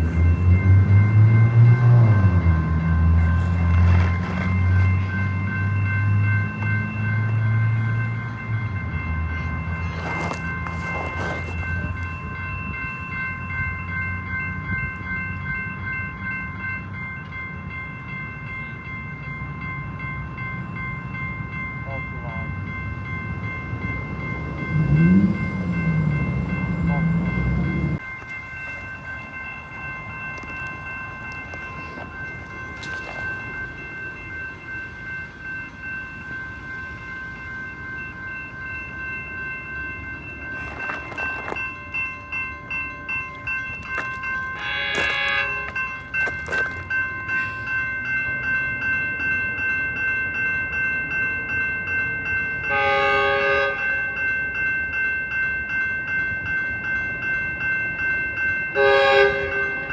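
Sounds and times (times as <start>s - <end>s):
train rumbling past: 0.0s - 49.8s
wheels clattering over rail joints: 3.1s - 6.0s, 9.6s - 13.9s, 40.2s - 47.7s
train horn blast: 44.6s - 45.7s, 52.7s - 54.1s, 58.8s - 59.9s.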